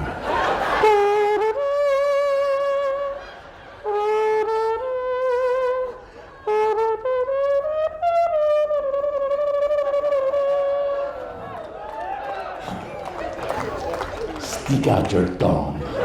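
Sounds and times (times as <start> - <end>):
brass fanfare melody: 0.0 - 11.4.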